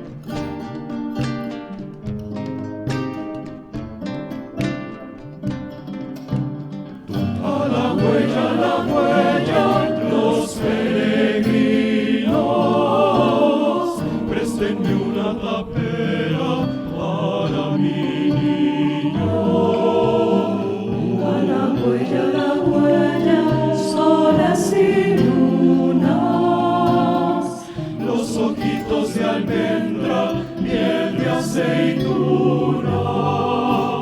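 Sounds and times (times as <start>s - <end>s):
choir singing in harmony: 7.1s - 34.0s.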